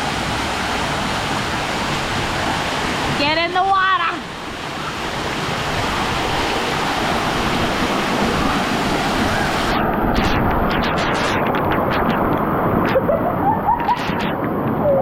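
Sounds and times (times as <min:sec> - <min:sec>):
water rushing: 0:00.0 - 0:15.0
wind buffeting microphone: 0:05.0 - 0:15.0.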